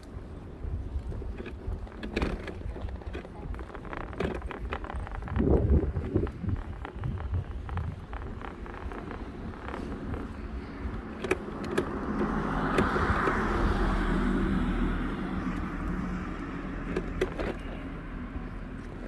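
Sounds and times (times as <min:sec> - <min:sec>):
sharp clicks: 0:01.4 - 0:13.4
car passing by: 0:10.5 - 0:18.3.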